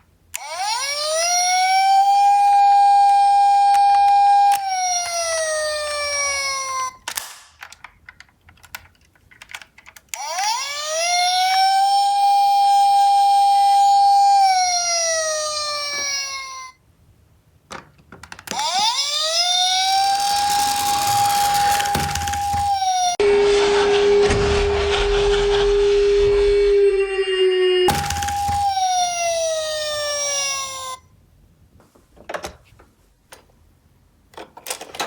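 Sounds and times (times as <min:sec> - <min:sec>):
toy siren wailing: 0:00.4 - 0:07.0, 0:10.2 - 0:16.8, 0:18.5 - 0:23.2, 0:26.9 - 0:31.1.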